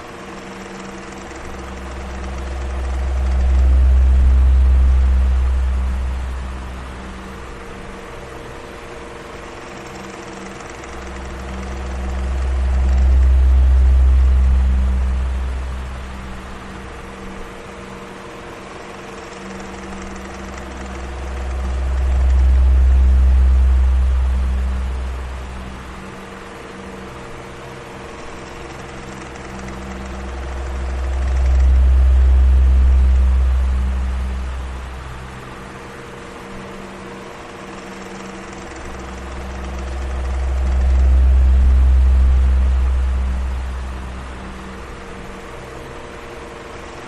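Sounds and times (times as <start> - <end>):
electric fan humming: 0.0 - 47.0
deep low rumble: 1.4 - 8.4, 11.0 - 17.1, 20.2 - 26.0, 29.7 - 35.9, 38.6 - 46.0.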